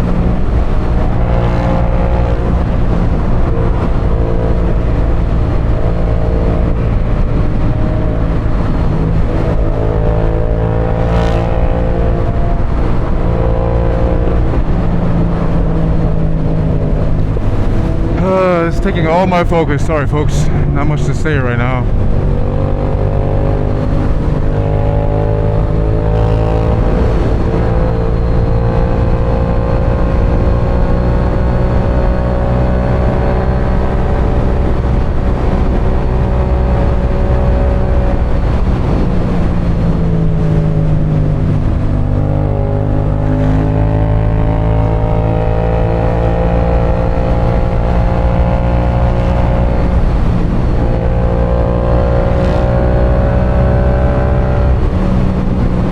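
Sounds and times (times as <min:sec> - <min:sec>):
motorcycle engine running: 0:00.0 - 0:18.3, 0:45.8 - 0:55.9
wind rush: 0:00.0 - 0:44.0, 0:46.8 - 0:55.9.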